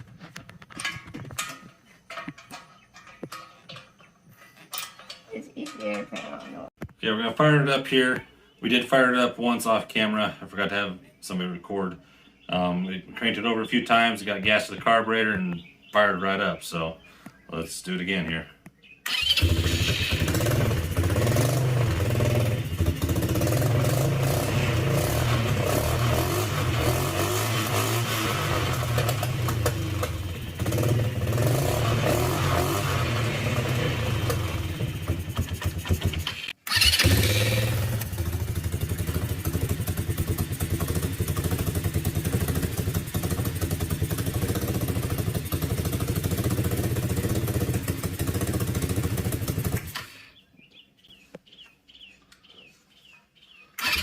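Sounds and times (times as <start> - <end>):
small four-stroke engine running: 19.1 - 50.1.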